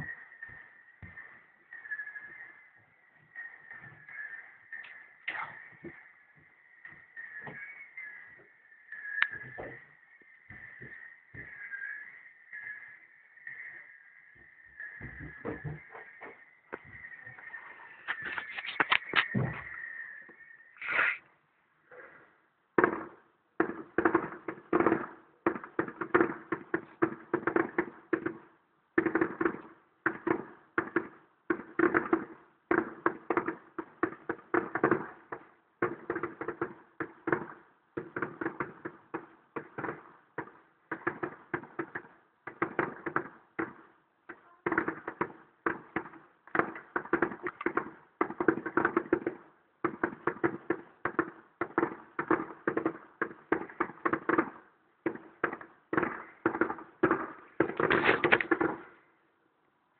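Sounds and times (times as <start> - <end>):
distant fireworks bursting: 0.0 - 59.3.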